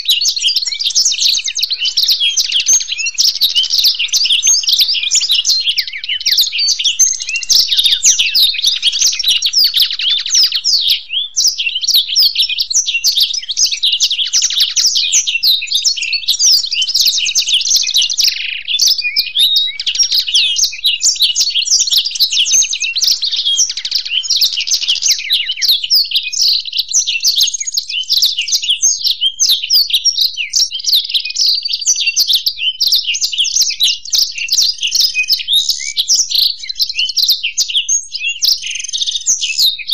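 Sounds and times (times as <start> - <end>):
birds singing rapid trills: 0.0 - 39.9.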